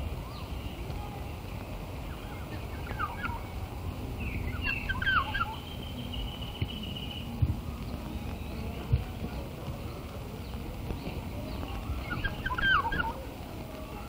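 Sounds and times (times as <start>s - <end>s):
birds chirping: 0.0s - 14.0s
low outdoor rumble: 0.0s - 14.0s
bird trilling: 2.7s - 3.5s, 4.2s - 7.2s, 11.8s - 13.2s.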